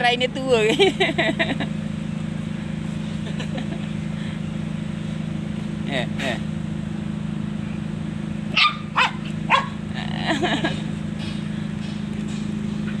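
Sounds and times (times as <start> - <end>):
low steady hum: 0.0 - 13.0
dog barking: 8.5 - 9.8
dog yelping: 8.5 - 9.9.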